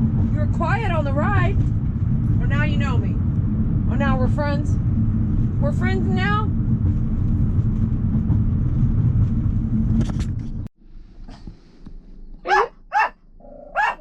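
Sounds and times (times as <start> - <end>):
car engine rumbling inside cabin: 0.0 - 13.9
dog barking: 12.4 - 14.0.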